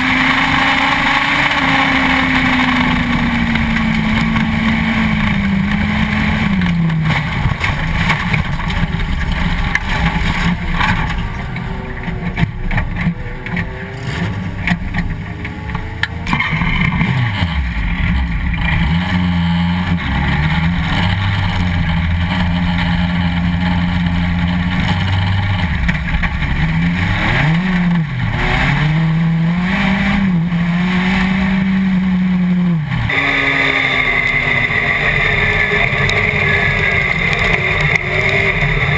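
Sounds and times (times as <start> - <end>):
race car engine revving: 0.0 - 38.9
knocks and rattles: 0.4 - 17.3.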